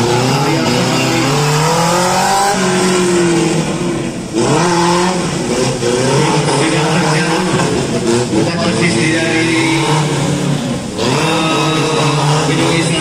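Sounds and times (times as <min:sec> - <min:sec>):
car engine revving hard: 0:00.0 - 0:13.0.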